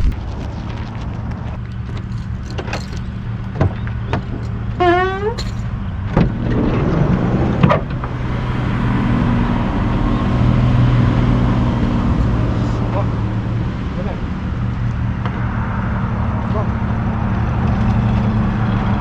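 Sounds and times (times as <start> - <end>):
car engine running: 0.0 - 19.0
rising whine: 6.4 - 19.0.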